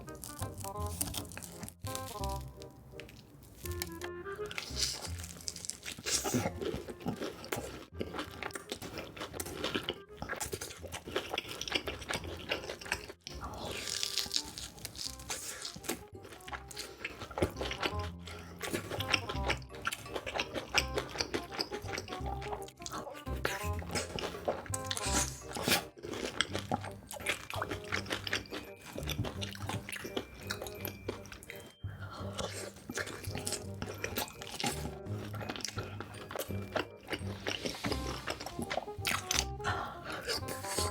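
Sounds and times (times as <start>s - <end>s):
crunchy chewing of food: 0.0s - 40.9s
background music with bass line: 17.5s - 27.1s, 34.7s - 40.9s.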